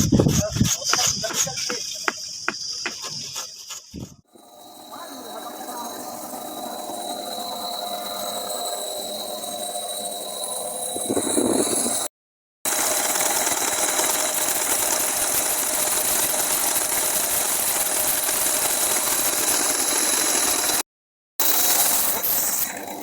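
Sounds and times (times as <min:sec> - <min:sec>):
machine running rattly: 0:04.4 - 0:12.1, 0:12.7 - 0:20.8, 0:21.4 - 0:23.0.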